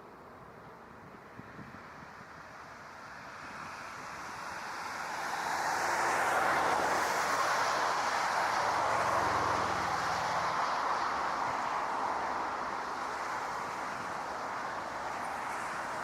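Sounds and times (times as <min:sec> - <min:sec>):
jet engines roaring: 0:04.7 - 0:16.0.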